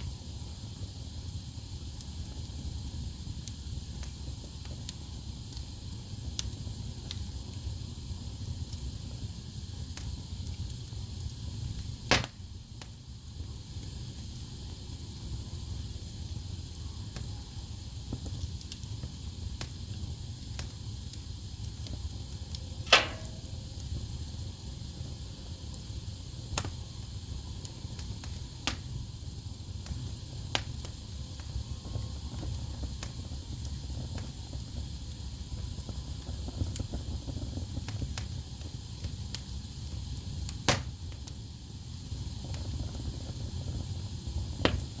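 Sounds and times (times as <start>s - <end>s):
flames rumbling: 0.0s - 45.0s
logs crackling and popping: 1.9s - 13.0s, 18.1s - 24.4s, 25.6s - 41.4s, 42.3s - 45.0s.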